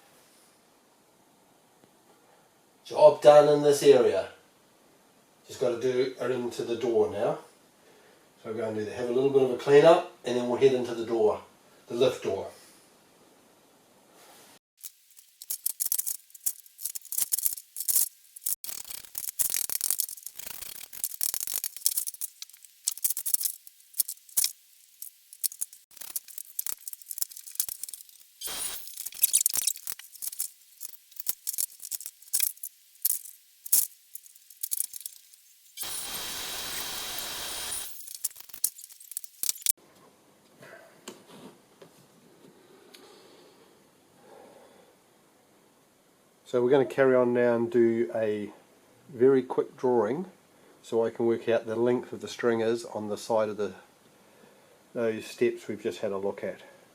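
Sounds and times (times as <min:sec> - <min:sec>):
steady hiss: 0:14.1 - 0:39.8
small hard pieces clinking and clattering: 0:14.8 - 0:36.0, 0:37.6 - 0:39.8.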